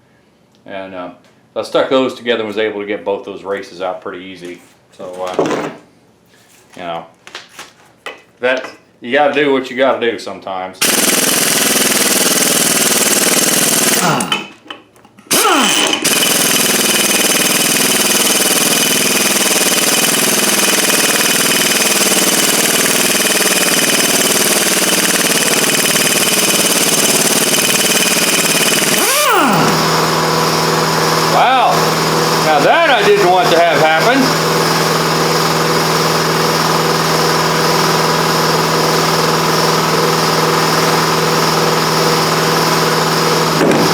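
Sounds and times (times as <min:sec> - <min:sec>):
impact wrench rattling: 0:10.8 - 0:37.9.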